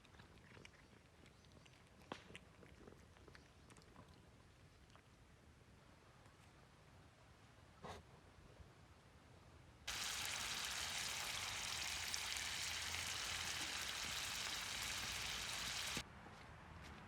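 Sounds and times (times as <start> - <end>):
meat sizzling in a pan: 9.9 - 16.0.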